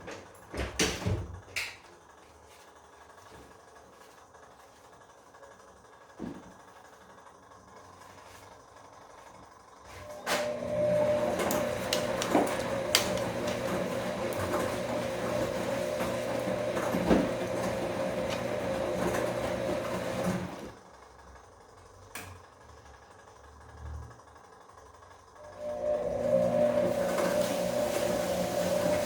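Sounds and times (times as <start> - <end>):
washing machine motor whining: 7.8 - 21.0, 25.2 - 29.0.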